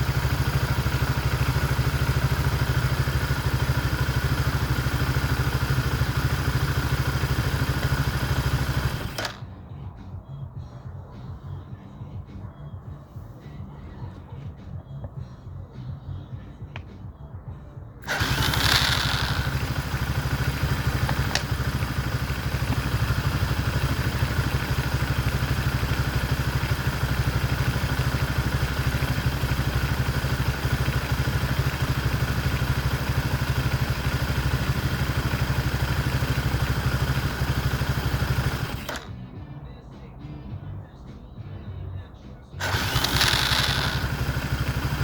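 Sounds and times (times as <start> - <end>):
motorcycle engine starting and idling: 0.0 - 39.8, 41.4 - 45.0.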